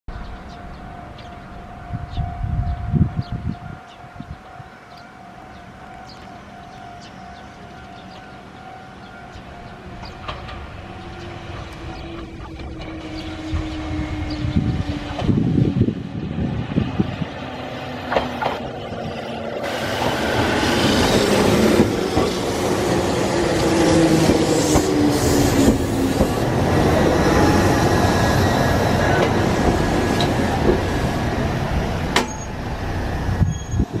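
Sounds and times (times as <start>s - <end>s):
train wheels rumbling on rails: 6.8s - 34.0s
high squeals: 32.2s - 34.0s.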